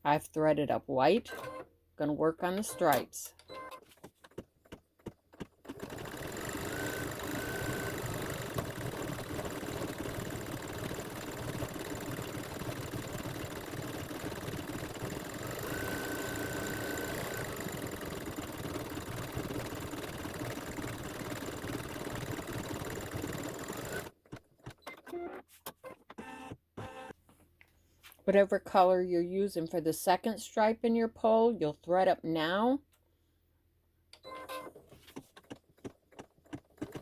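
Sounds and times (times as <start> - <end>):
embroidery machine stitching: 5.6 - 24.8.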